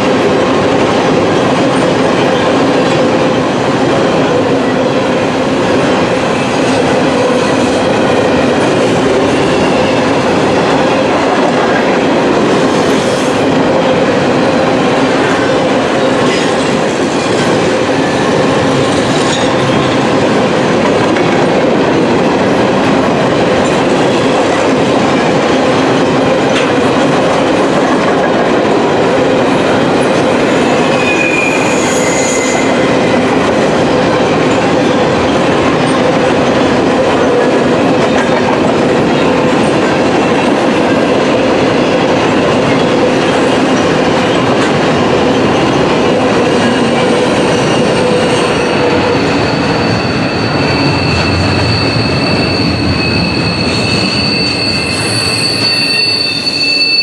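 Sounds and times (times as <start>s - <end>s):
train wheels rumbling on rails: 0.0s - 57.0s
high-pitched wheel squeals: 30.8s - 33.0s, 47.6s - 57.0s.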